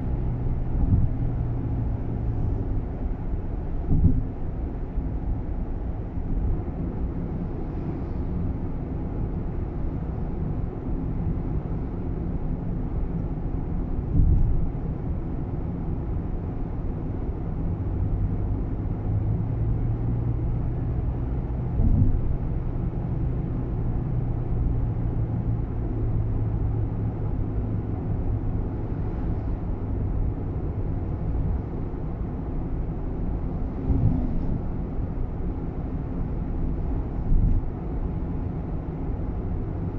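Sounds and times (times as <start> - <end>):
car road and engine rumble: 0.0 - 39.9
steady low hum: 0.0 - 39.9
thumps over bumps: 0.7 - 1.4, 3.9 - 4.4, 14.1 - 14.6, 21.7 - 22.4, 33.7 - 34.6.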